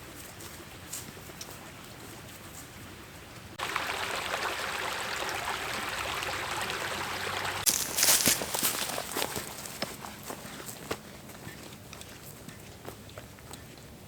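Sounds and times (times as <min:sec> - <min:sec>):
water rushing: 0:03.6 - 0:09.5.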